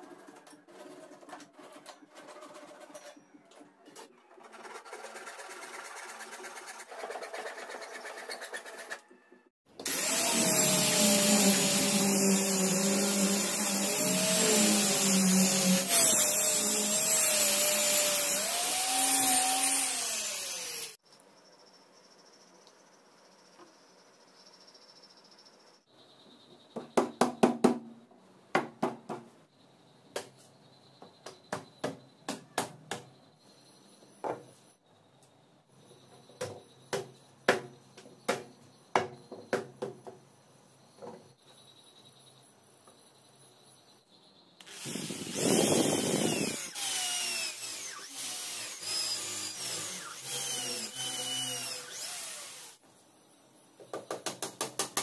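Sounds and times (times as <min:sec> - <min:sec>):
power drill running: 0:09.8 - 0:21.0, 0:44.6 - 0:52.8.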